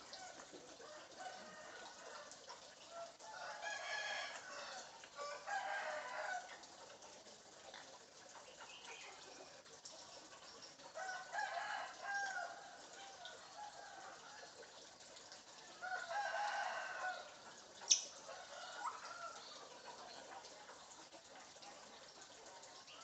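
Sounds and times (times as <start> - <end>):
rooster-like crowing: 2.9 - 6.5, 11.0 - 14.5, 15.8 - 17.4.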